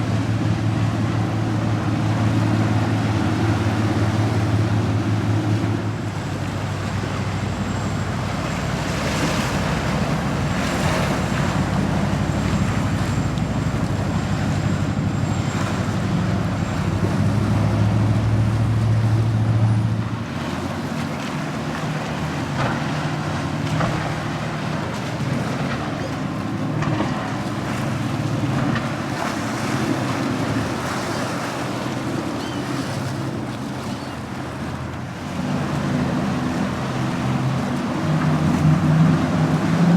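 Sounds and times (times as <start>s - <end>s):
motorboat engines: 0.0s - 39.9s
waves washing: 0.0s - 39.9s.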